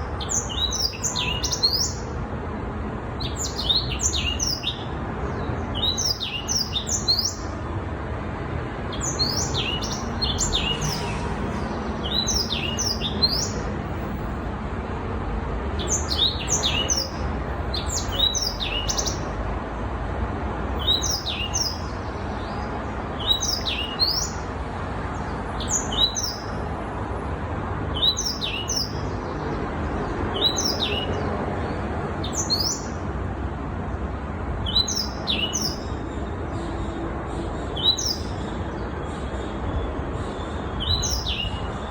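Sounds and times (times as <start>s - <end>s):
canary singing: 0.1s - 2.1s, 3.2s - 4.9s, 5.8s - 7.5s, 8.9s - 11.2s, 12.0s - 13.7s, 15.8s - 19.3s, 20.8s - 22.0s, 23.2s - 24.4s, 25.6s - 26.5s, 28.0s - 29.2s, 30.3s - 31.2s, 32.2s - 33.0s, 34.6s - 35.9s, 40.2s - 41.7s.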